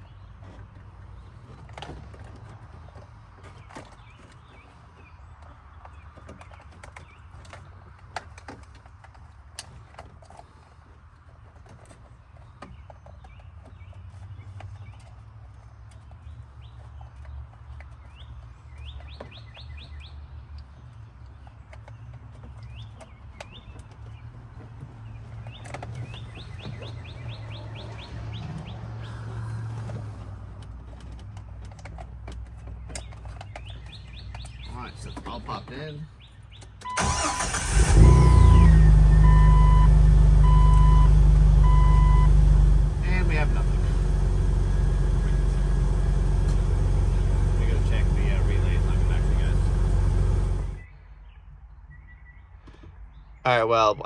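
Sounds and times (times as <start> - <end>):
bird chirping: 12.4 - 29.4, 32.9 - 37.0.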